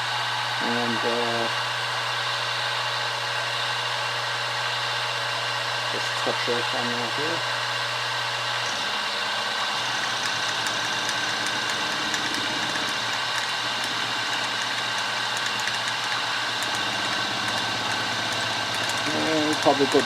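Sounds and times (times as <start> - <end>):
milling machine running: 0.0 - 20.0
faint high ticking: 9.8 - 20.0.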